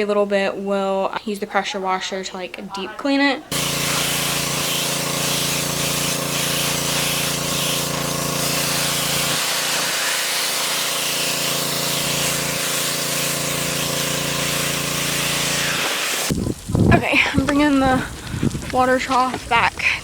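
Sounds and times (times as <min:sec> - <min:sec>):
pressure washer engine hum: 0:03.5 - 0:16.3
water jet spraying: 0:03.5 - 0:16.4.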